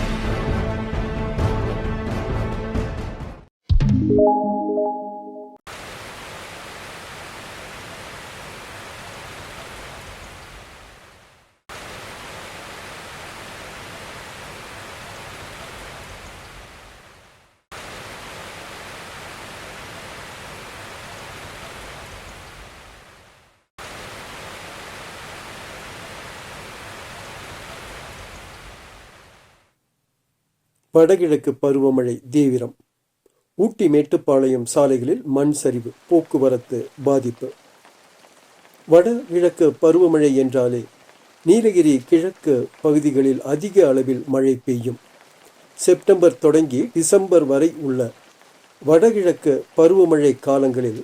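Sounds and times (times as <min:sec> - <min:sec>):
rushing water noise: 0:05.7 - 0:29.5, 0:35.4 - 0:51.0.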